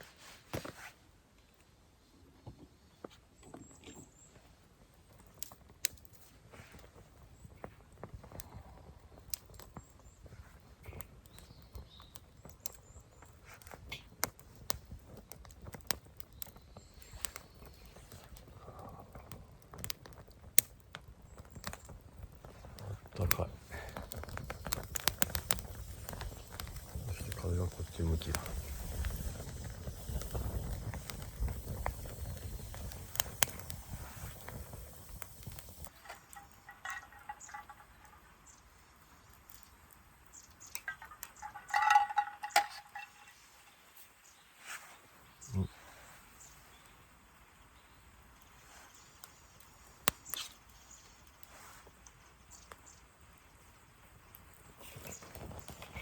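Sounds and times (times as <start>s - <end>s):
campfire crackling: 3.4s - 56.0s
campfire popping: 3.4s - 56.0s
wind rumbling on microphone: 21.3s - 38.1s.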